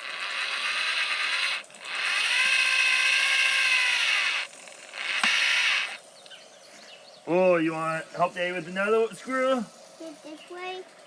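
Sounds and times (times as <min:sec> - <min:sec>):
power drill driving a screw: 0:00.0 - 0:06.0.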